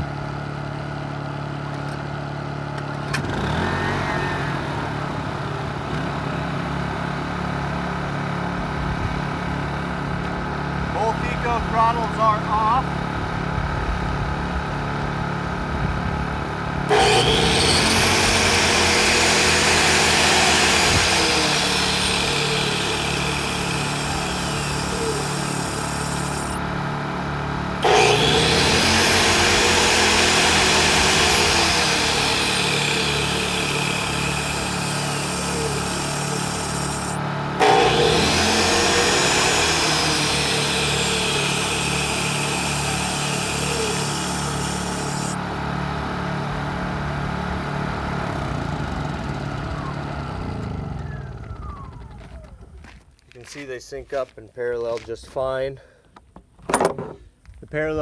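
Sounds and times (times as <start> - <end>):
generators running: 2.7 - 53.4
power tool whining: 3.0 - 7.3, 14.8 - 53.1.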